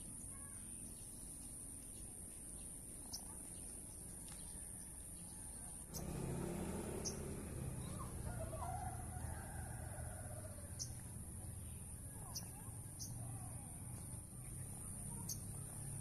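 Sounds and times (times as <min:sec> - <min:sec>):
small bird chip calls: 0:00.3 - 0:09.0.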